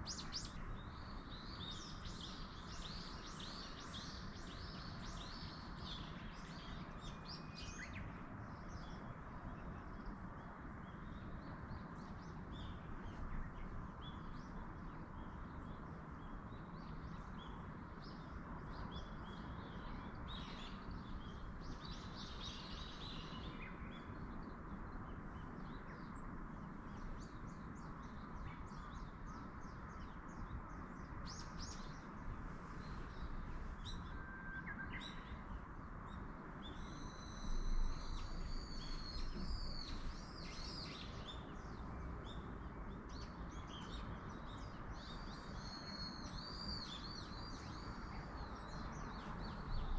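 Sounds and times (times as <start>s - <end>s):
wind through trees: 0.0s - 49.9s.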